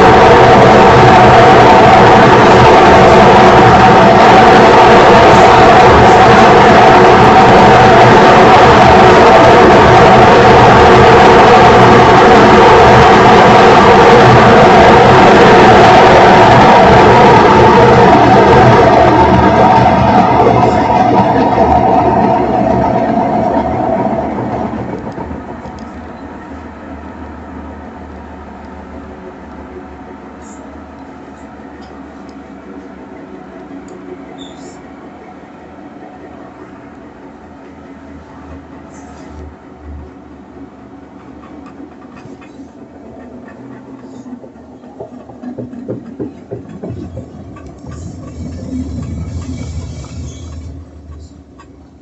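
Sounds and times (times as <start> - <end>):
rapid knocks: 44.9 - 48.0.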